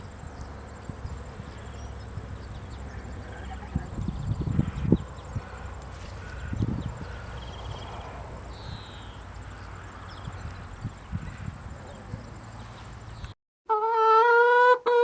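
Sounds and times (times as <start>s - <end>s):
crickets chirring: 0.0s - 13.4s
hooves thudding on ground: 4.0s - 9.5s.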